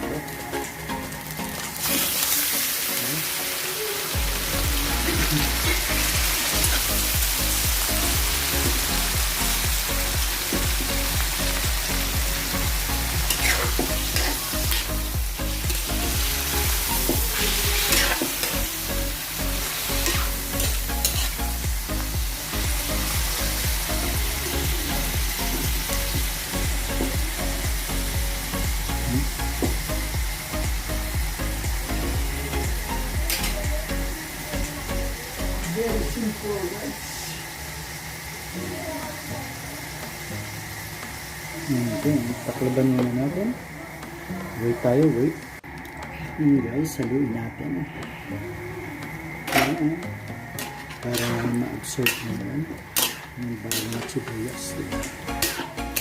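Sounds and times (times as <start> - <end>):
meat sizzling in oil: 0.0 - 45.8, 49.1 - 56.0
utensil scraping pan: 50.6 - 52.4, 53.0 - 54.4.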